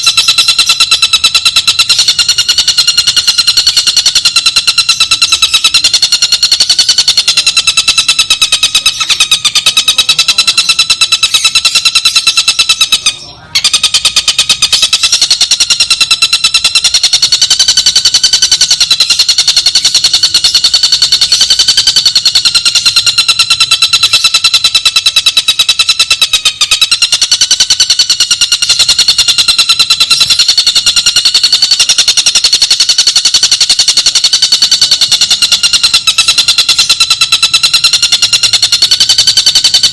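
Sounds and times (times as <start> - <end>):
kingfisher rattling trill: 0.0 - 39.9.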